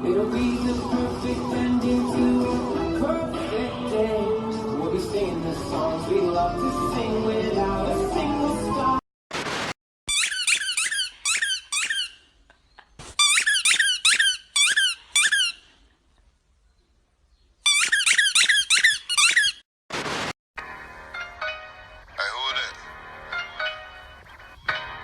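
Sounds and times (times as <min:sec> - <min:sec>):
music: 0:00.0 - 0:09.0, 0:20.6 - 0:25.0
burst of noise: 0:09.3 - 0:09.8, 0:19.9 - 0:20.4
high-pitched squeaks: 0:10.1 - 0:12.3, 0:13.0 - 0:15.6, 0:17.7 - 0:19.6.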